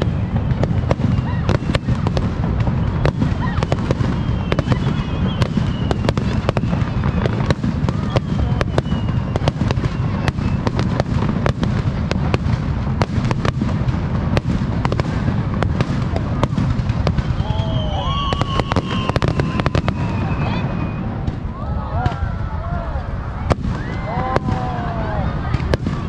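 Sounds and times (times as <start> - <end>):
deep rumble of booms: 0.0 - 26.0
fireworks bursting with sharp cracks: 0.0 - 26.0.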